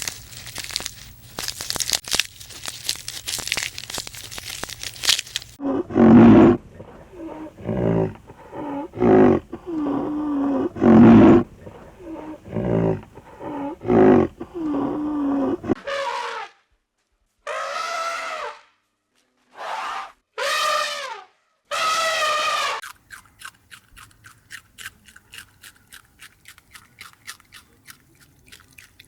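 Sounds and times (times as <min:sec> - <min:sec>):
loud harsh animal calls: 0:17.5 - 0:18.6, 0:19.6 - 0:22.8.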